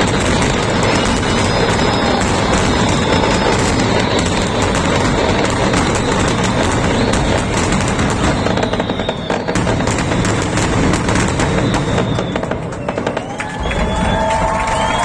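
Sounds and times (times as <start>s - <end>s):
fireworks bangs and crackling: 0.0s - 15.0s
faint high whistles: 0.6s - 4.6s, 6.9s - 9.9s, 11.4s - 15.0s.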